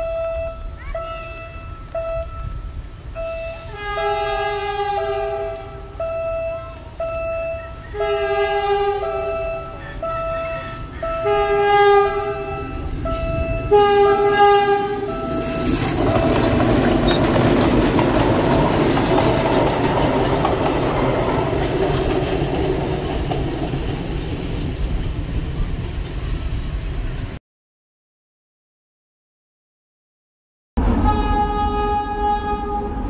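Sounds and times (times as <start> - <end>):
train horn blasts: 0.0 - 16.8, 30.8 - 33.0
train passing with rumble: 0.0 - 27.4, 30.8 - 33.0
wheel clatter: 15.1 - 26.2.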